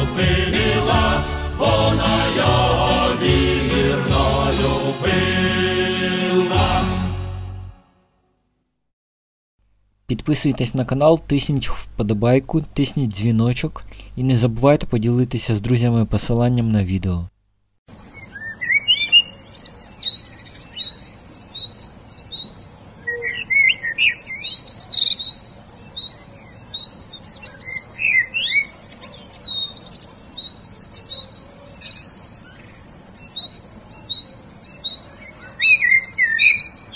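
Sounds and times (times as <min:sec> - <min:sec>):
birds chirping and singing: 0:18.0 - 0:36.9.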